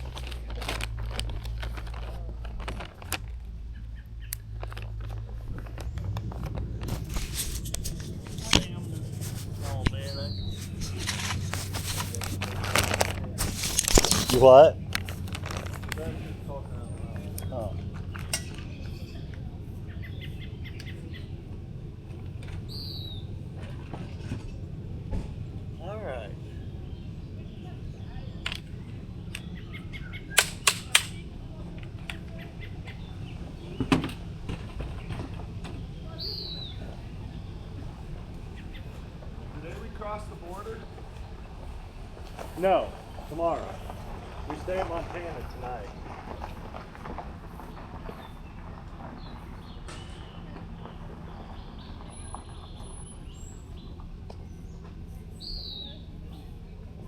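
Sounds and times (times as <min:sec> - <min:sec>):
low steady rumble: 0:00.0 - 0:57.0
bird chirping: 0:03.6 - 0:12.0, 0:16.0 - 0:21.5, 0:22.5 - 0:23.4, 0:25.8 - 0:41.8, 0:42.4 - 0:56.7.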